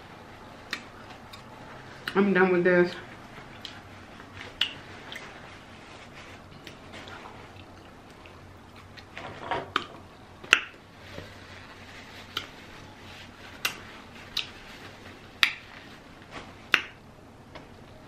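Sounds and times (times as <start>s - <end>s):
wet mouth smacks while chewing: 4.4s - 5.3s.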